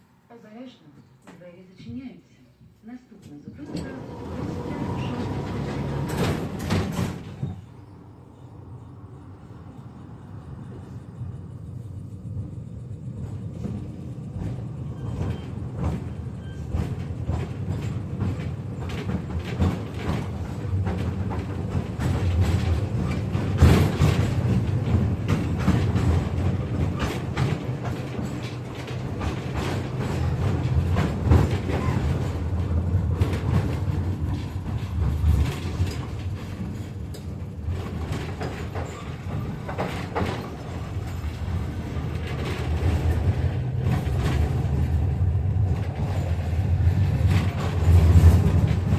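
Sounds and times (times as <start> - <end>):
tram running along track: 3.5 - 48.9.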